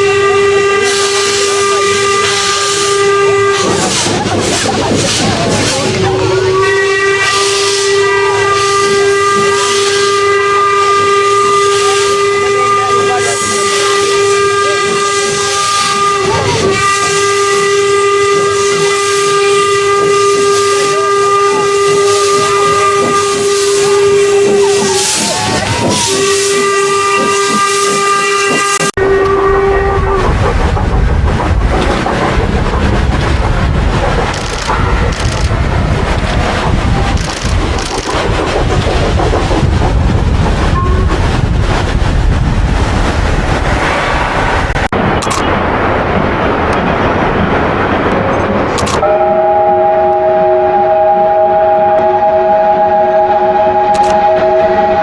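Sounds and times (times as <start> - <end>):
steam locomotive whistle: 0.0 - 4.1, 6.1 - 30.3, 48.9 - 55.0
hissing steam: 0.7 - 28.9
wind noise: 14.6 - 55.0
low rumble: 29.0 - 49.0.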